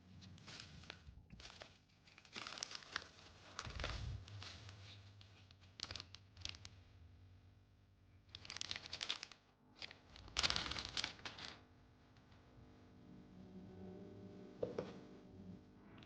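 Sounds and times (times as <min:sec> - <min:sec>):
rustling and crinkling: 0:00.1 - 0:07.0, 0:08.2 - 0:12.5.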